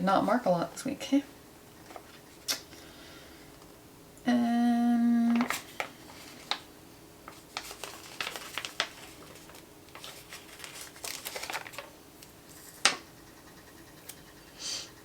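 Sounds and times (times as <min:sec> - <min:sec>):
paper rustling: 0:05.3 - 0:13.0.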